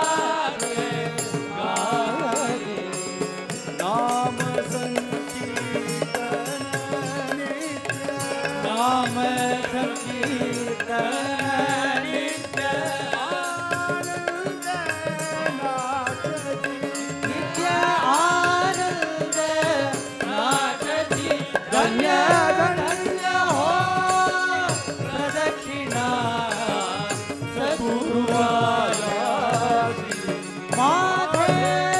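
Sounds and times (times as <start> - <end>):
devotional group singing: 0.0 - 3.5, 6.1 - 31.9
drum and percussion beat: 0.0 - 31.9.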